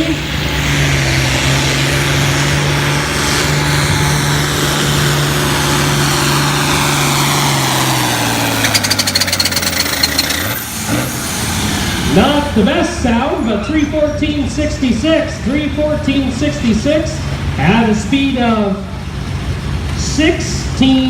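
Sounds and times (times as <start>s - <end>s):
diesel tractor engine at full throttle: 0.0s - 21.0s
rapid clatter: 8.5s - 10.6s.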